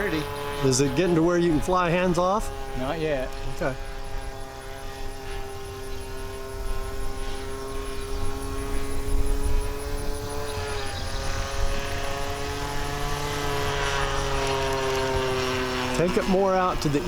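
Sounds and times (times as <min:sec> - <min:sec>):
model plane engine droning: 0:00.0 - 0:17.0
wind rumble on microphone: 0:00.0 - 0:17.0.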